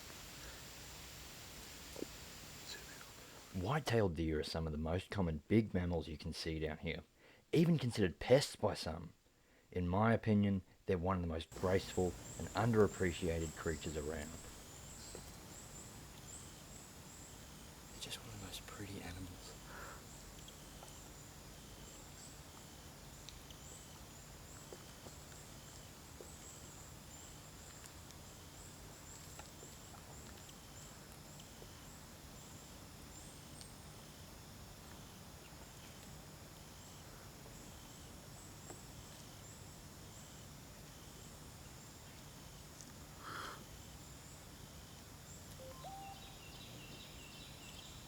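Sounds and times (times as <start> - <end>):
insect calling in pulses: 45.6 - 47.4.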